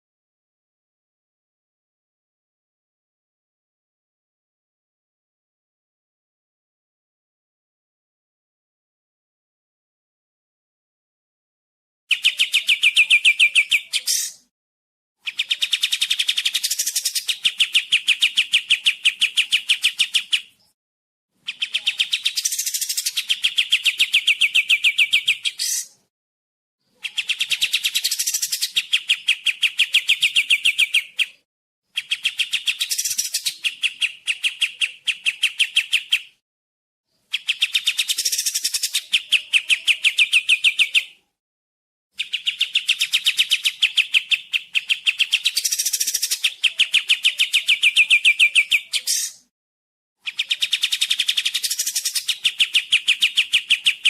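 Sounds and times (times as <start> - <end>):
bird trilling clear notes: 42.2 - 49.5.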